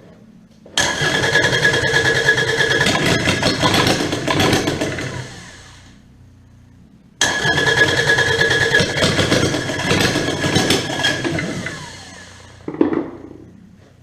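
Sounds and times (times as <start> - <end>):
diesel engine cranking on starter: 0.8 - 6.1, 7.2 - 12.7.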